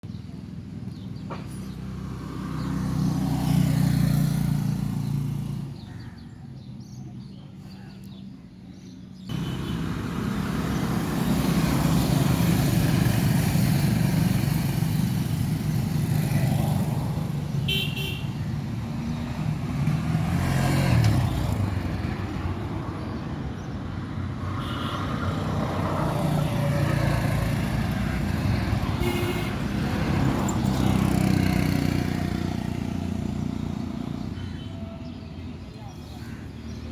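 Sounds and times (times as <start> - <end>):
passing vehicles rumbling: 0.0 - 7.9, 8.8 - 36.9
car horn toots: 17.7 - 18.3, 29.0 - 29.7.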